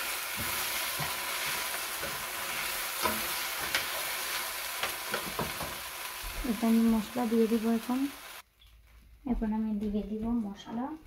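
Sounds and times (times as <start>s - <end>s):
spatula scraping a pan: 0.0s - 6.2s
rice frying in hot oil: 0.0s - 8.5s.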